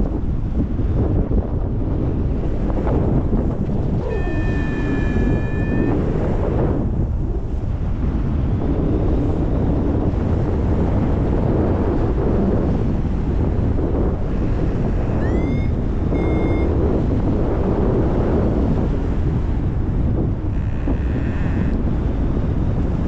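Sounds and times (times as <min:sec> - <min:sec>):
wind rushing over microphone: 0:00.0 - 0:23.0
variometer rising tone: 0:03.8 - 0:06.4, 0:15.0 - 0:16.8, 0:20.5 - 0:21.8
variometer beep: 0:04.0 - 0:06.1, 0:15.2 - 0:16.8, 0:20.6 - 0:21.8.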